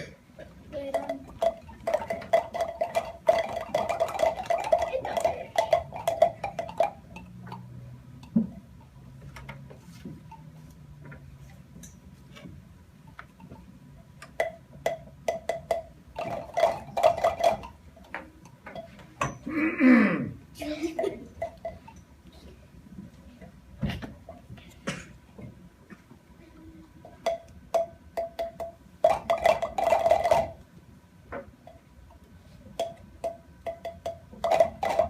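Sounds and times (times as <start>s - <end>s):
plastic pipes clattering: 0.0s - 10.4s, 13.2s - 19.5s, 27.1s - 30.6s, 32.7s - 35.0s.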